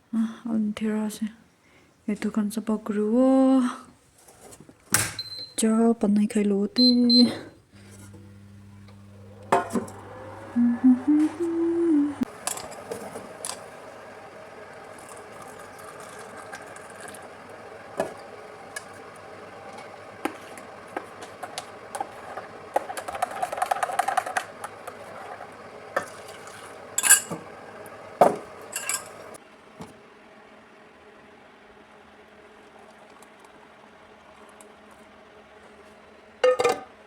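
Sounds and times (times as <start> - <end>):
steady low hum: 6.8 - 29.4
dishes and cutlery clinking: 28.8 - 29.2.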